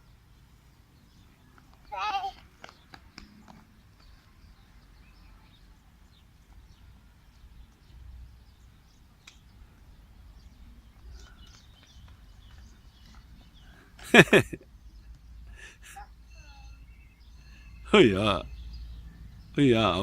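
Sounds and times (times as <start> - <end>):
faint bird chirps: 14.6 - 19.8.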